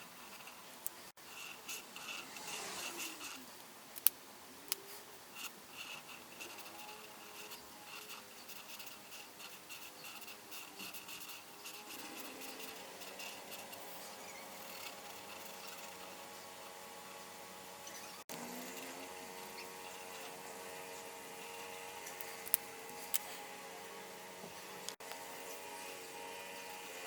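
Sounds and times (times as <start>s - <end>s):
coloring strokes on paper: 0.0s - 3.5s, 4.8s - 17.4s
sharp clicks: 22.1s - 23.3s.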